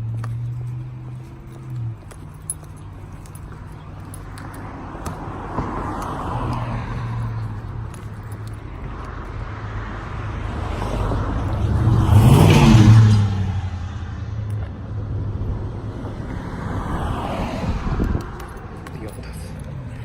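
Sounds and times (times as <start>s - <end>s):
low engine hum: 0.0s - 20.0s
car passing by: 4.4s - 7.8s, 8.8s - 20.0s.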